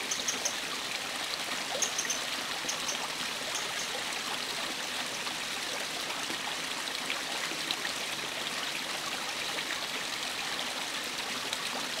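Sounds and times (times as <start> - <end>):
wren call notes: 0.0 - 0.6, 1.8 - 3.0
stream flowing: 0.0 - 12.0.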